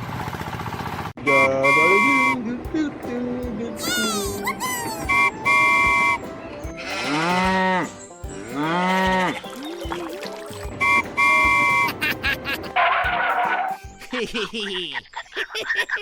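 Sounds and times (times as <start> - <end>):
horn-like beeps: 1.2 - 2.6, 4.9 - 9.4, 10.7 - 12.0
cow mooing: 6.8 - 7.9, 8.5 - 9.4.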